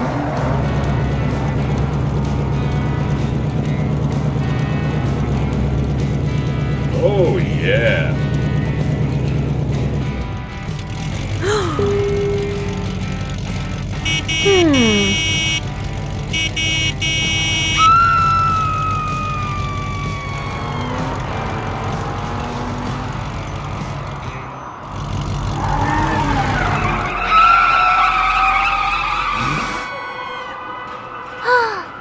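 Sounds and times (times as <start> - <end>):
cartoon engine running: 11.0 - 23.5
tyre squeals: 16.4 - 21.7, 25.4 - 30.4.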